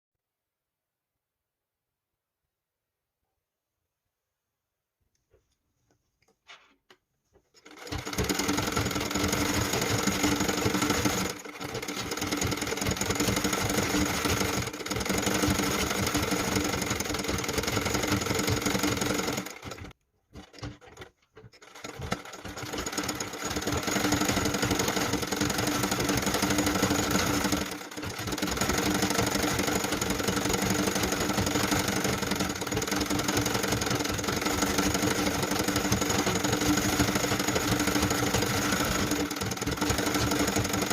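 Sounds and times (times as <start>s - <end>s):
sewing machine stitching: 7.5s - 40.9s.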